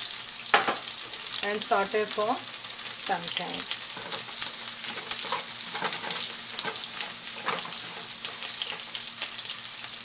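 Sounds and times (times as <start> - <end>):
vegetables sizzling in oil: 0.0 - 10.0
wooden spoon stirring: 4.0 - 9.0.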